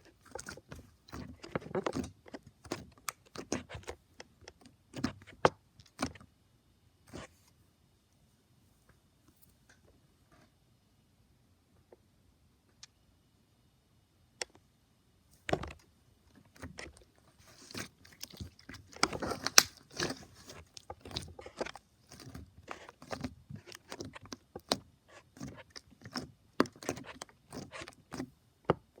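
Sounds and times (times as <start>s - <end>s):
crunchy slime being squished: 16.6s - 28.3s.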